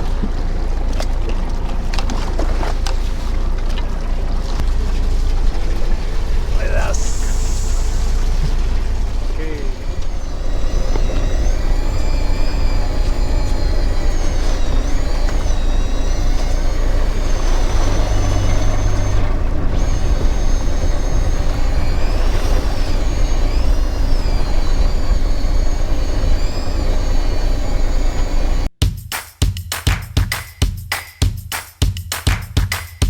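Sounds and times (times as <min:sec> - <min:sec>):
boat engine running: 0:00.0 - 0:28.7
thin high wavering whine: 0:04.7 - 0:28.7.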